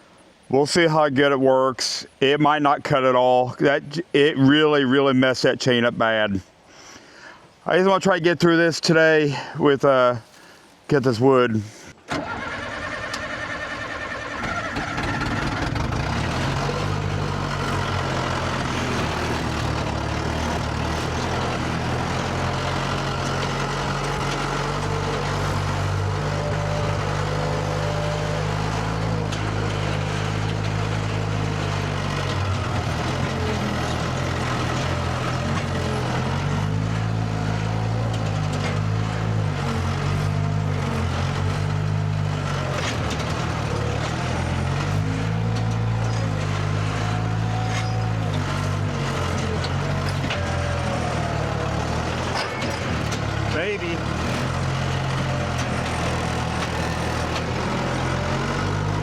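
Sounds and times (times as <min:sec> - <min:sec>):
engine running: 0:12.1 - 0:59.0.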